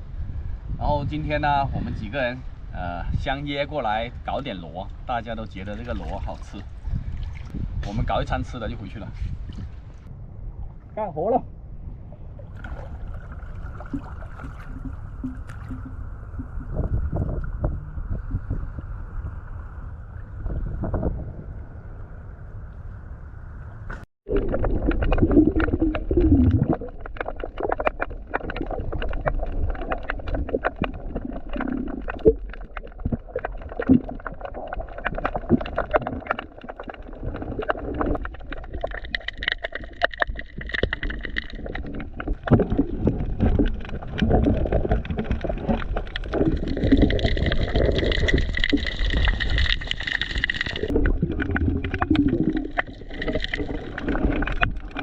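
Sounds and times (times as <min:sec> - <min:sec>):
low rumble: 0:00.0 - 0:39.6
water gurgling and sloshing: 0:00.0 - 0:55.0.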